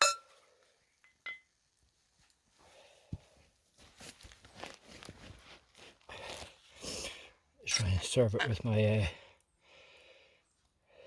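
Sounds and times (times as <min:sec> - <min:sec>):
soft rustling and shuffling: 0:01.9 - 0:06.7.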